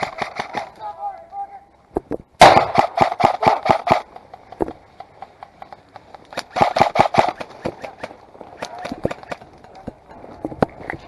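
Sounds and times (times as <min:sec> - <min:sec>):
airsoft guns firing: 0:00.0 - 0:00.8, 0:02.4 - 0:04.1, 0:06.4 - 0:09.4.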